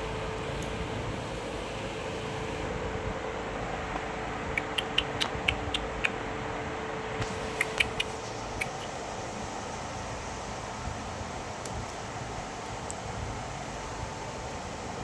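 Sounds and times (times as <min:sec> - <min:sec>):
steady fan-like hum: 0:00.0 - 0:15.0
parrot clicking: 0:04.6 - 0:06.2, 0:07.6 - 0:08.9.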